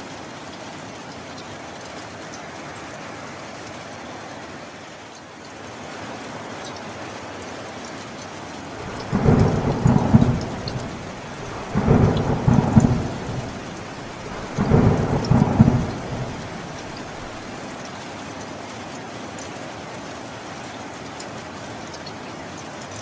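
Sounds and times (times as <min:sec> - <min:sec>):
steady rain: 0:00.0 - 0:23.0
thunder rumbling: 0:08.8 - 0:17.5.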